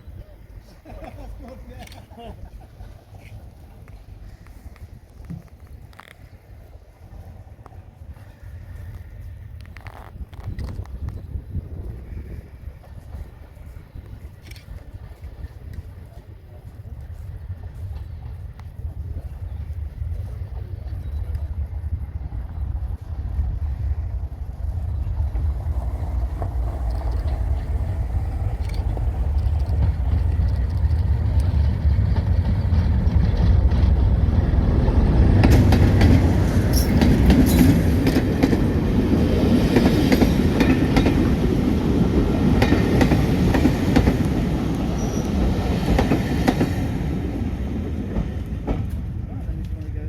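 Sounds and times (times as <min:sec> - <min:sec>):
train rumbling: 0:00.0 - 0:50.0
wheels clicking over track: 0:24.8 - 0:50.0.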